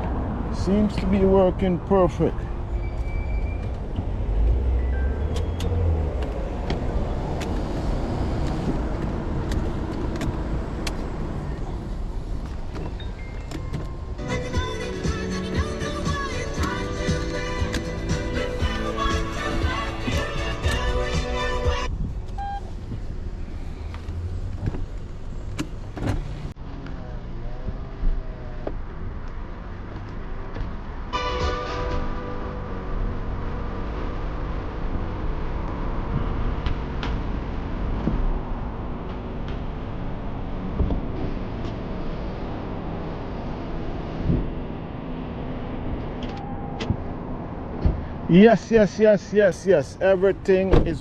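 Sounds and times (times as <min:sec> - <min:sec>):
car engine and tyre noise: 0:00.0 - 0:51.0
background music: 0:14.0 - 0:21.9, 0:31.1 - 0:34.1.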